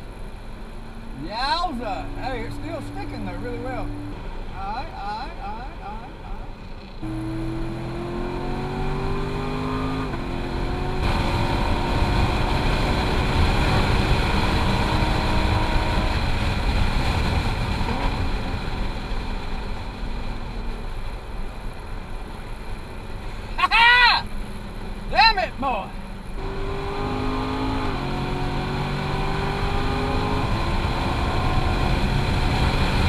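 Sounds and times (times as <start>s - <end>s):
car engine accelerating hard: 1.0s - 6.0s, 6.6s - 20.4s, 25.6s - 33.0s.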